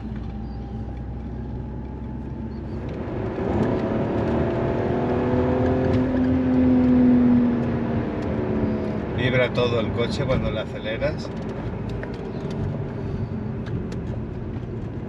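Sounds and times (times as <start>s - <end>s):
car engine accelerating: 0.0s - 15.0s
man talking: 9.2s - 11.3s.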